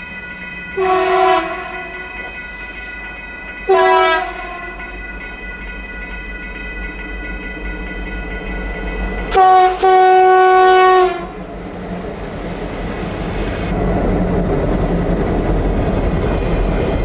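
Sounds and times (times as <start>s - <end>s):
passing train rumble: 0.0s - 17.0s
locomotive air horn: 0.8s - 2.3s, 3.7s - 4.8s, 9.3s - 11.4s.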